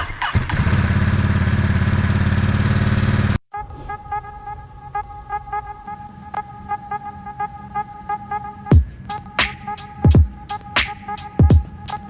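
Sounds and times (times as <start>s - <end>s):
hip-hop music with steady beat: 8.7s - 12.0s.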